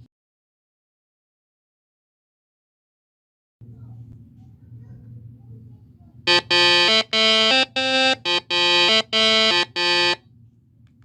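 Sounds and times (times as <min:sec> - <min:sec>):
low steady hum: 0:03.6 - 0:11.0
buzzy electronic melody: 0:06.3 - 0:10.2.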